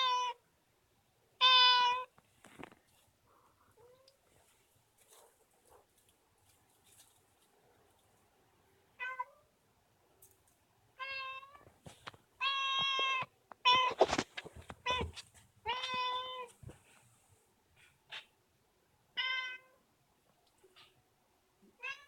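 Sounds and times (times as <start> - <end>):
cat meowing: 0.0 - 0.4, 1.4 - 2.1, 9.0 - 9.4, 11.0 - 11.7, 12.4 - 14.2, 14.8 - 16.5, 19.2 - 19.8, 21.7 - 22.0.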